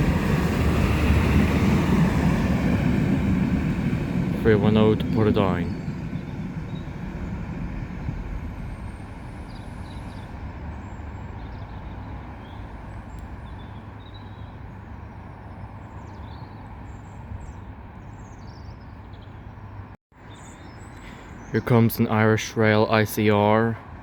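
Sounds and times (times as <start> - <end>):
diesel train engine rumble: 0.0 - 18.0.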